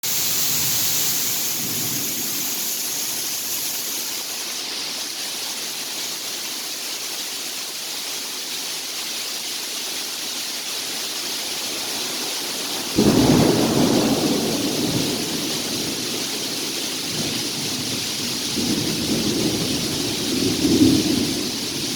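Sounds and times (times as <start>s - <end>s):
rain hissing: 0.0s - 21.9s
thunder clap and rumbling: 0.3s - 2.8s, 12.9s - 21.9s.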